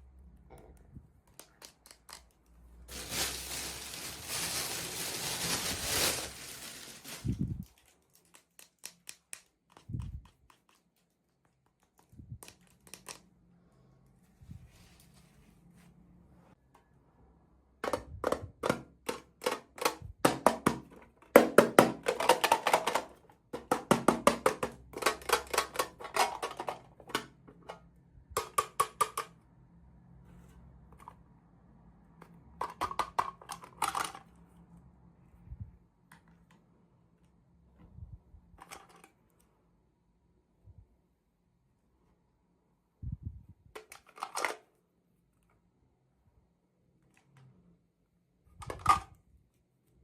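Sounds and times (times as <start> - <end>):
plastic toy pieces clicking: 24.5 - 26.8.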